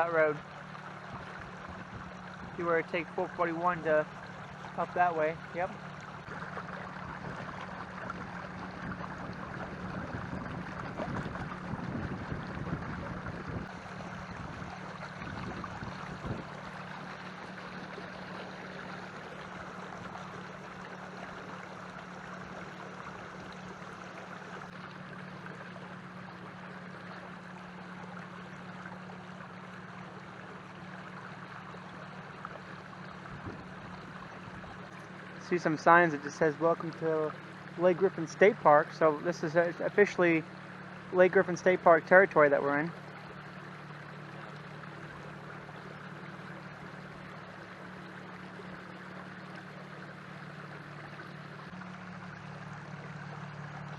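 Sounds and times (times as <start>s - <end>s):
small splashes and knocks: 0.0s - 35.5s
steady low hum: 0.0s - 53.9s
water rushing along canoe hull: 0.0s - 53.9s.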